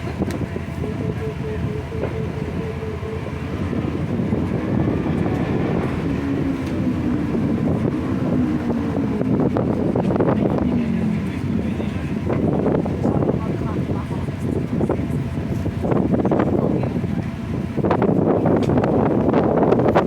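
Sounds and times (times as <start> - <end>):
traffic passing: 0.0 - 16.4
engine hum dropping in pitch: 0.0 - 20.0.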